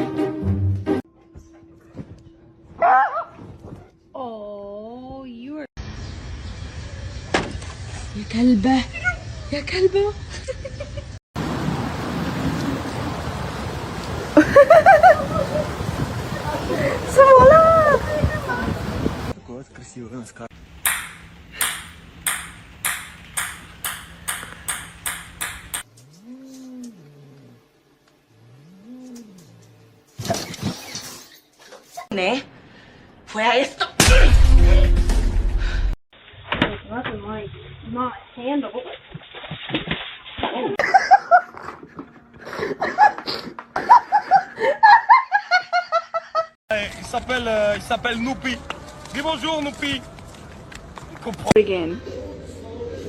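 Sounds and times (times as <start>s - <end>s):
person laughing hard: 14.4s - 15.8s, 40.8s - 46.5s.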